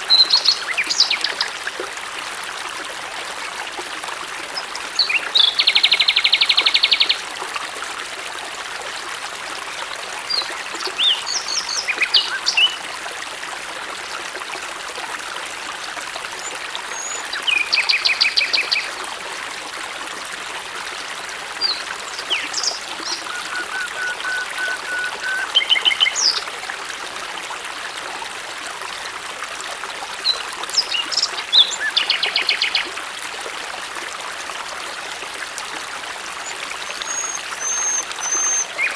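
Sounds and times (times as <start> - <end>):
small stream running: 0.0 - 38.9
bird chirps and whistles: 23.2 - 25.7, 37.0 - 38.9.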